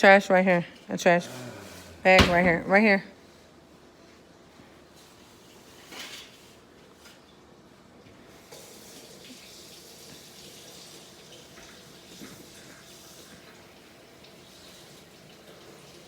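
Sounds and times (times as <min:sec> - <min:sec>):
tap water running into sink: 0:08.5 - 0:16.0.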